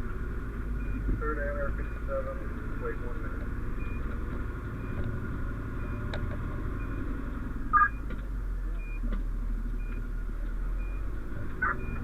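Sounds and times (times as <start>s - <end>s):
fire engine rumbling: 0.0s - 12.0s
short high beep: 7.7s - 8.0s
two-note electronic beep: 7.7s - 8.0s.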